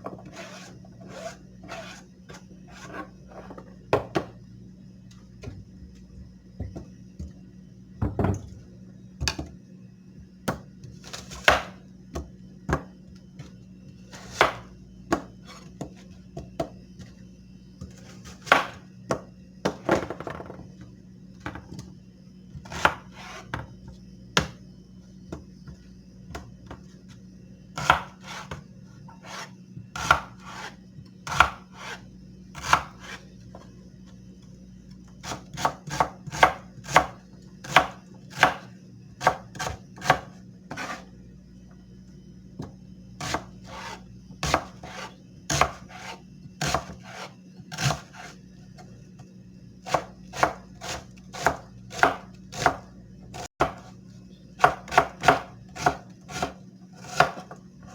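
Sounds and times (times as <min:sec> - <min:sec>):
steady low hum: 0:00.0 - 0:57.9
knife scraping hard surface: 0:00.1 - 0:02.1, 0:29.1 - 0:29.6.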